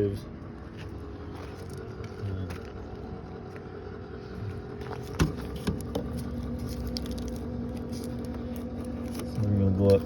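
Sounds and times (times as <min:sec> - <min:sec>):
bus engine idling: 0:00.0 - 0:10.0.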